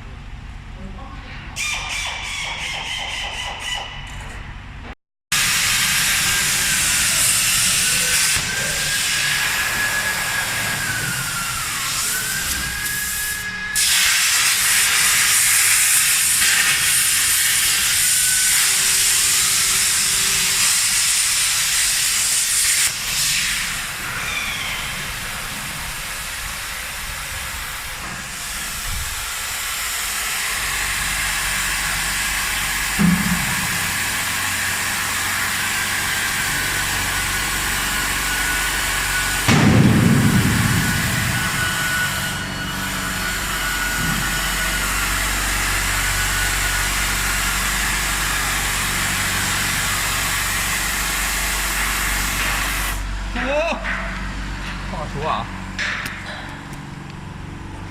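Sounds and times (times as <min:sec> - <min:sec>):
plasma torch hissing: 0:05.4 - 0:31.2
thump: 0:33.0 - 0:33.7.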